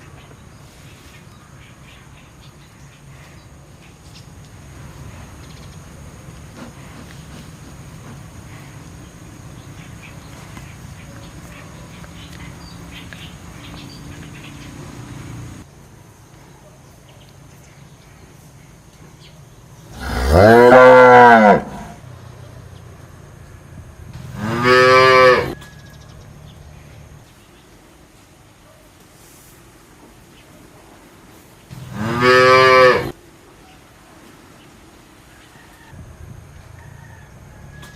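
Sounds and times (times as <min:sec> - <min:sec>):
cow mooing: 0:20.0 - 0:22.0, 0:24.3 - 0:25.6, 0:31.7 - 0:33.1.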